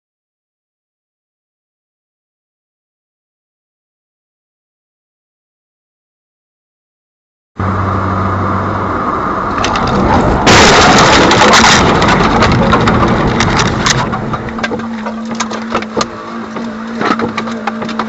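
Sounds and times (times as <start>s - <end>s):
car engine and road noise: 7.6s - 18.0s
loud car crash: 9.4s - 15.7s
crunching and clattering: 9.5s - 18.0s.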